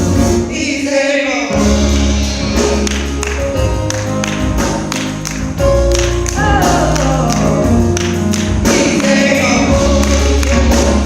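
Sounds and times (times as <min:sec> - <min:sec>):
gospel band playing: 0:00.0 - 0:11.0
person singing: 0:06.3 - 0:11.0.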